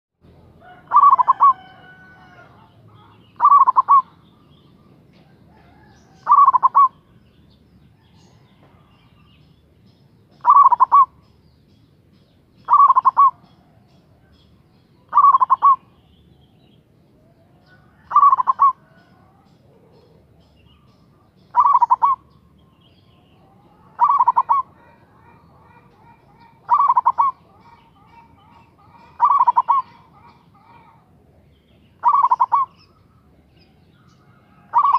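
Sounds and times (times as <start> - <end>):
dove cooing: 0.4 - 7.2, 10.3 - 11.2, 12.6 - 14.4, 15.0 - 16.0, 17.2 - 34.9.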